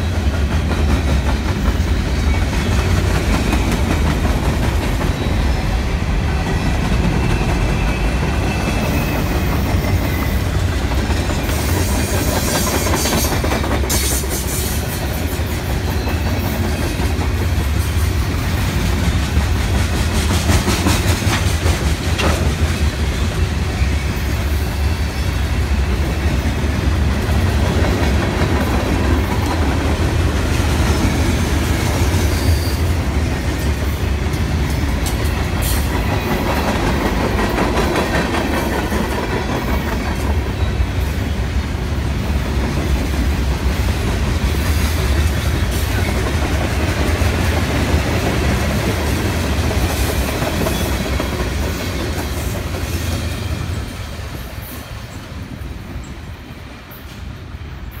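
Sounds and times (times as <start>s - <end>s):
freight train rolling past: 0.0s - 58.0s
wheels clicking over rail joints: 19.1s - 23.0s.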